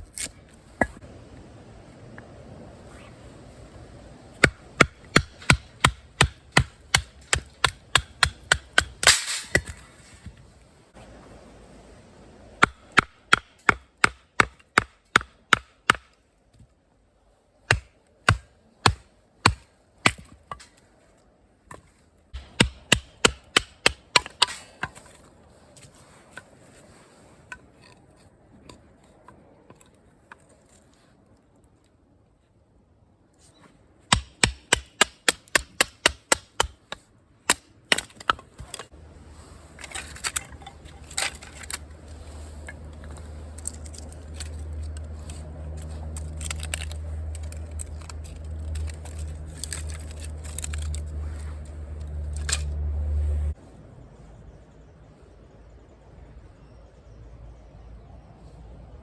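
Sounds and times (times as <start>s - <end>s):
wood being chopped: 4.4s - 9.8s, 12.6s - 16.1s, 17.7s - 20.7s, 22.4s - 25.1s, 34.1s - 38.9s.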